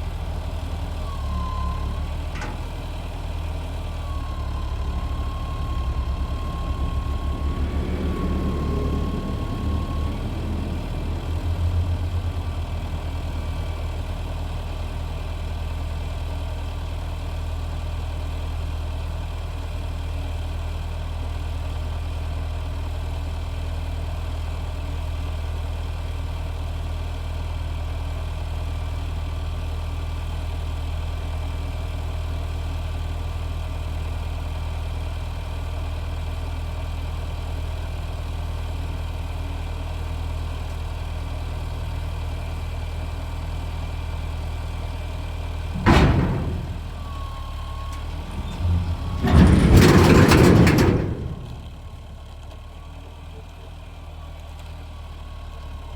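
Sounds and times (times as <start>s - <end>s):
truck engine idling: 0.0s - 19.6s, 36.9s - 55.9s.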